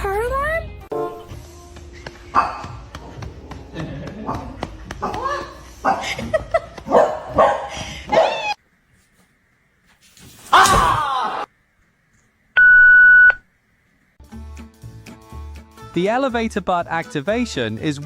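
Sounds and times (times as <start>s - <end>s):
soft music: 0.0s - 6.5s, 14.2s - 18.0s
electronic beep: 12.6s - 13.4s.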